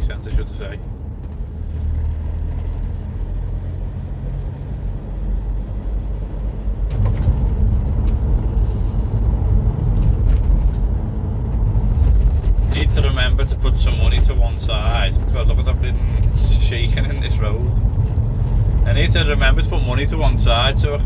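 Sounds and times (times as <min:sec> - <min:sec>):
road rumble: 0:00.0 - 0:21.0
van engine drone: 0:00.0 - 0:21.0.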